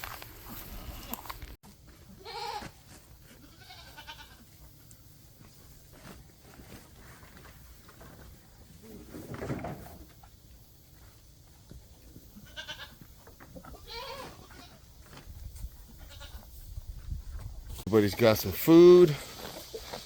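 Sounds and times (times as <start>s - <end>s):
goats bleating: 2.1s - 4.6s, 12.3s - 13.1s, 13.7s - 14.8s, 16.0s - 16.5s.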